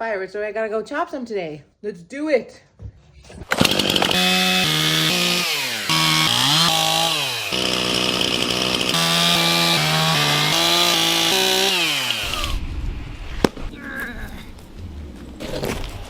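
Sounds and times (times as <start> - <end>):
chainsaw cutting wood: 3.5 - 12.6.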